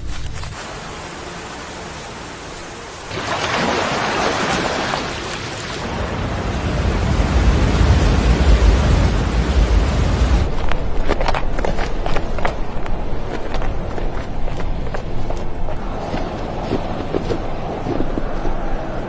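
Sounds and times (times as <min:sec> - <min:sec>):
steady rushing noise: 0:00.0 - 0:19.0
deep rumble: 0:05.8 - 0:11.1.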